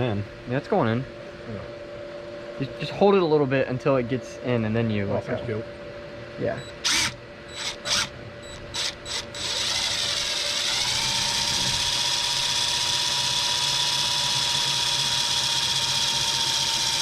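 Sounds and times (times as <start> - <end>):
power drill driving a screw: 6.8 - 8.1, 8.7 - 17.0.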